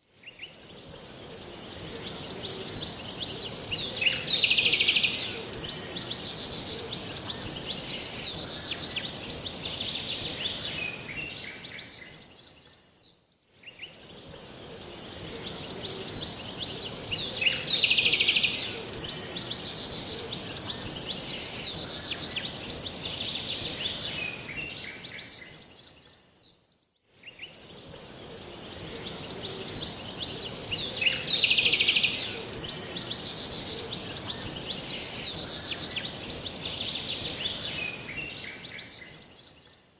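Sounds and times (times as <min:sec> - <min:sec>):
steady high hiss: 0:27.3 - 0:39.4.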